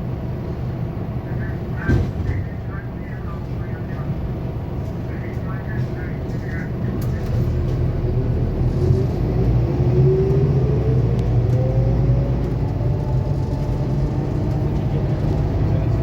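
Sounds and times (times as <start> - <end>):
bus engine rumble: 0.0 - 16.0
rising whine: 8.0 - 16.0.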